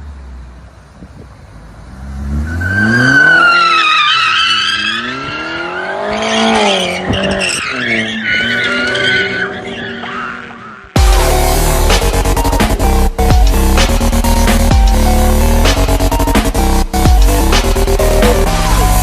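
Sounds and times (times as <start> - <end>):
car engine revving: 0.0 - 19.0
tyres squealing: 2.5 - 10.9.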